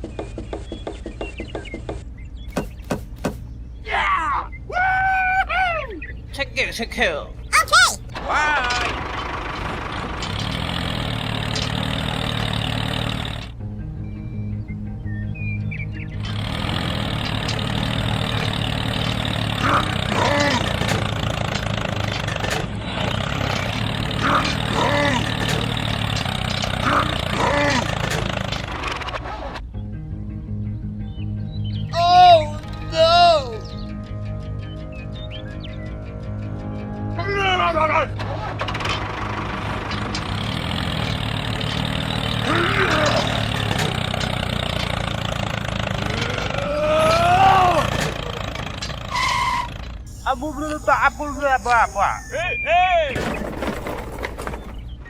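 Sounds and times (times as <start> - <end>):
rising and falling calls: 7.4 - 10.8, 45.9 - 53.2
small engine running: 8.1 - 13.6, 16.1 - 29.6, 38.2 - 52.6
rising and falling call: 49.1 - 53.2.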